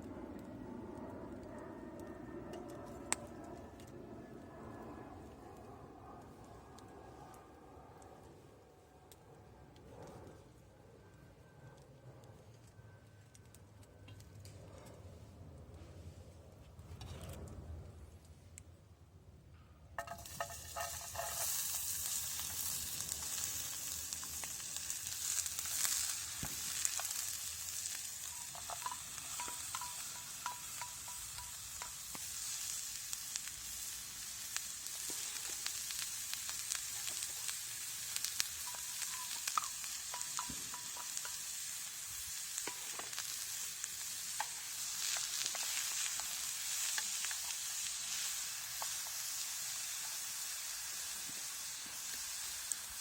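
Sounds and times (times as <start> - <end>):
food sizzling in a metal tin: 20.0 - 53.0
light metallic clinks: 27.8 - 32.0.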